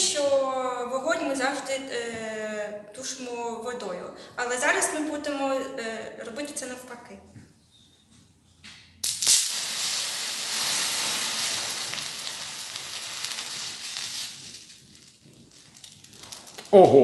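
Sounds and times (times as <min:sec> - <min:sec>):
chemical reaction hissing and sizzling: 0:09.0 - 0:16.8.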